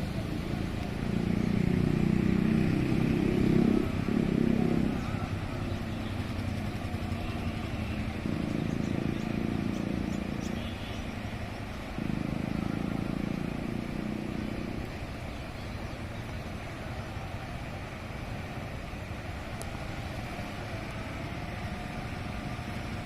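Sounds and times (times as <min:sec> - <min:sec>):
vehicle engines passing: 0:00.0 - 0:23.0.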